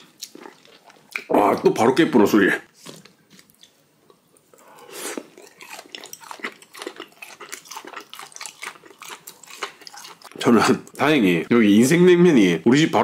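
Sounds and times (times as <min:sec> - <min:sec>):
chewing food: 0:03.0 - 0:11.0.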